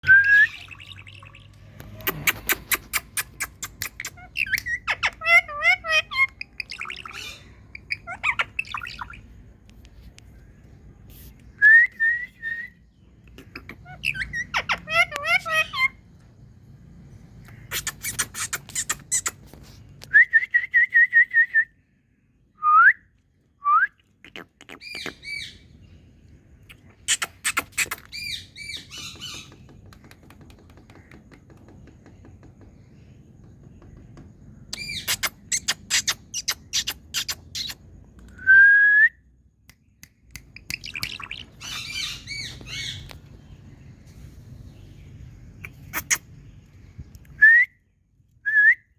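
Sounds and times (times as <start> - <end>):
parrot trilled whistle: 0.0 - 0.9
parrot clicking chirps and squawks: 1.9 - 9.2, 13.2 - 16.0, 17.4 - 19.4, 26.7 - 31.2, 34.7 - 38.3, 40.0 - 43.2, 45.6 - 46.3.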